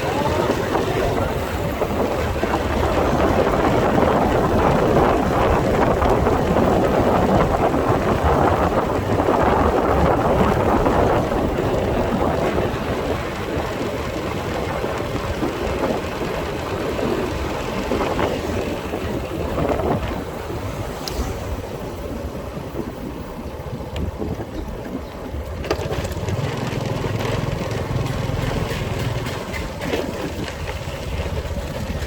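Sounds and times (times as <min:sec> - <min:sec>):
road noise: 0:00.0 - 0:32.0
wind rushing on microphone: 0:00.0 - 0:32.0
motorcycle engine: 0:25.3 - 0:32.0.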